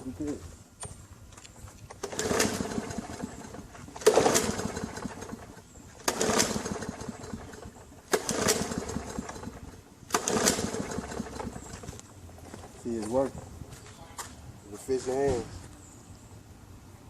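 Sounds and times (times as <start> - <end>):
engine turning over: 1.9 - 13.0
lawn mower recoil starter pulled: 1.9 - 13.2.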